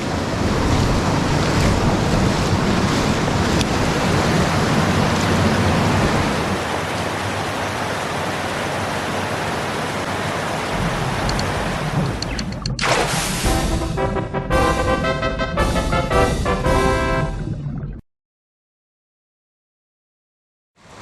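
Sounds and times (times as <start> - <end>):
stream water rushing: 0.0 - 13.7.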